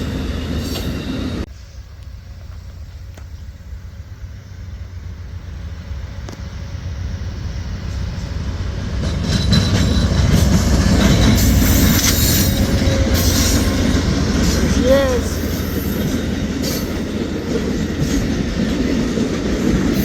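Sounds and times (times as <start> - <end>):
diesel locomotive rumble: 0.0 - 20.0
wheels clattering on rail: 7.8 - 20.0.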